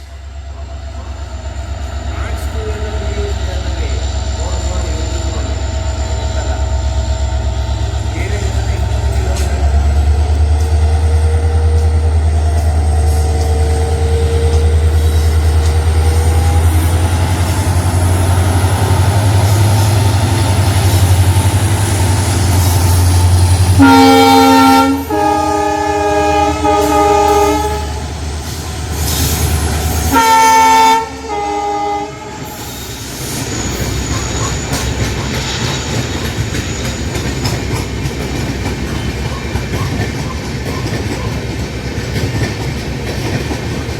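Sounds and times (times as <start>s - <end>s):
locomotive low drone: 0.0s - 42.0s
multi-tone train horn: 23.7s - 28.2s, 29.9s - 32.8s.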